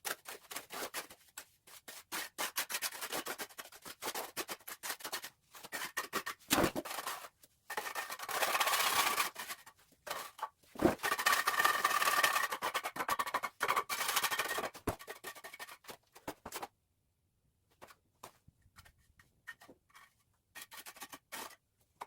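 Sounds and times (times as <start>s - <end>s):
trowel scraping mortar: 0.0s - 16.0s, 19.5s - 21.6s.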